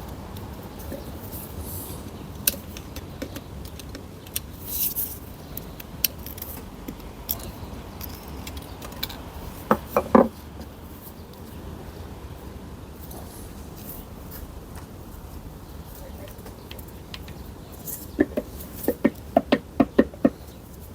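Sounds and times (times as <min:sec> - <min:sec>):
small metal parts clinking: 0:07.3 - 0:09.2.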